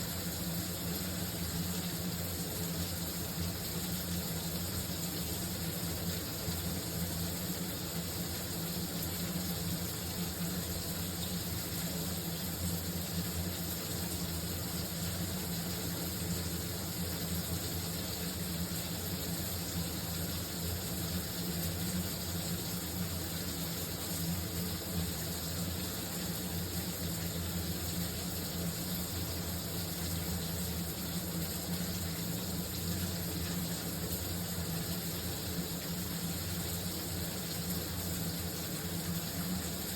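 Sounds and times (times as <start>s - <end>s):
shower spraying water: 0.0s - 39.9s.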